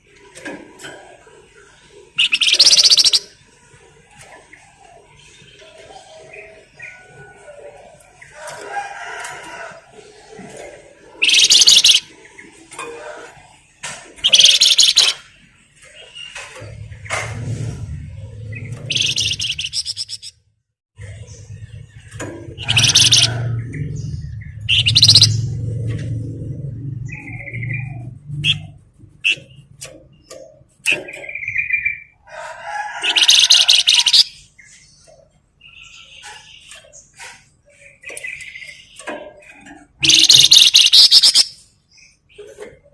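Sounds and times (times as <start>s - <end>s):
songbird singing: 1.4s - 3.5s, 9.5s - 12.7s, 13.5s - 17.6s, 18.2s - 20.4s, 21.0s - 32.2s, 33.0s - 42.9s
songbird chattering trills: 2.1s - 3.4s, 11.2s - 12.1s, 14.2s - 15.2s, 18.6s - 20.3s, 22.5s - 25.6s, 33.0s - 34.4s, 40.0s - 41.7s
soft bird chirps: 2.2s - 3.4s, 11.2s - 12.1s, 14.2s - 15.3s, 18.6s - 20.3s, 21.0s - 25.6s, 40.0s - 42.9s.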